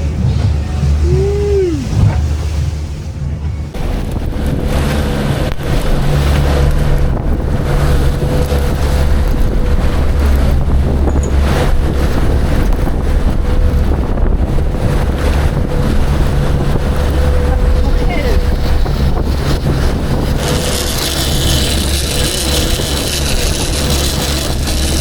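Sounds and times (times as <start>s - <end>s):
boat motor droning: 0.0s - 25.0s
wind buffeting microphone: 0.0s - 25.0s.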